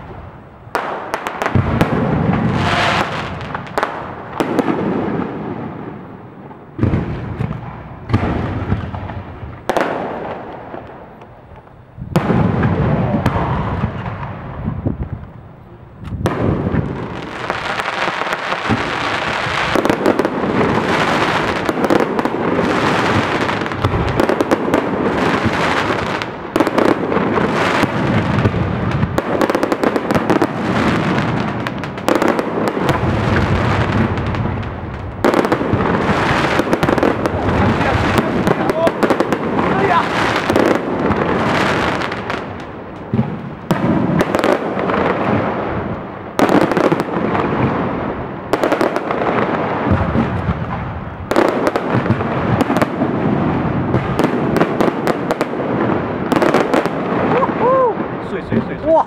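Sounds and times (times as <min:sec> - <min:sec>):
fireworks bangs and crackle: 0:00.0 - 0:59.0.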